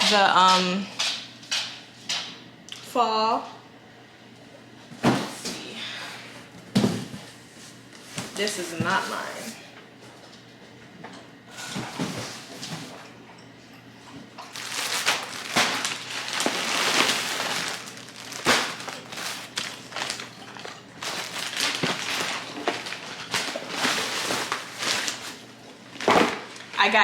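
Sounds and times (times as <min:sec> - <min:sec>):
packaging crinkling and rustling: 0:14.4 - 0:26.8.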